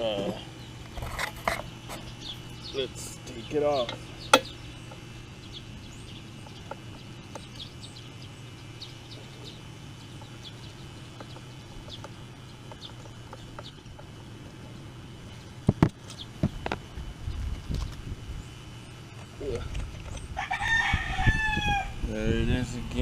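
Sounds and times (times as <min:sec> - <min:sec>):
birds chirping: 0:00.0 - 0:23.0
steady low hum: 0:00.0 - 0:23.0.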